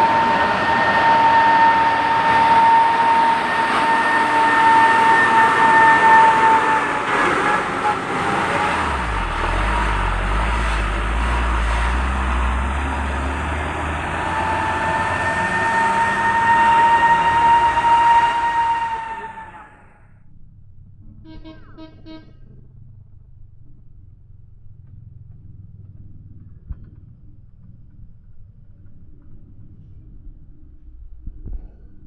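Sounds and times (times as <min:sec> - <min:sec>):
truck engine labouring: 0:00.0 - 0:31.1
high whine: 0:00.0 - 0:32.0
deep low rumble: 0:06.6 - 0:14.3, 0:19.6 - 0:32.0.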